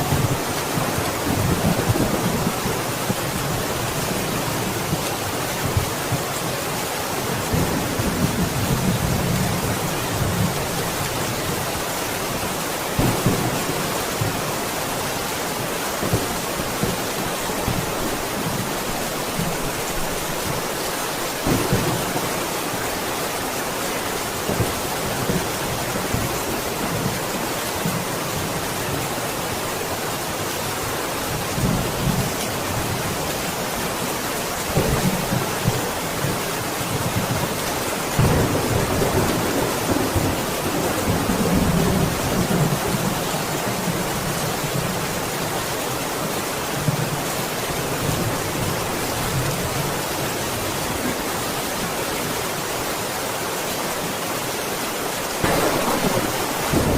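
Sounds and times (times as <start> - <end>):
steady rain falling: 0.0 - 56.9
thunder rumbling: 37.0 - 43.1, 55.4 - 56.9.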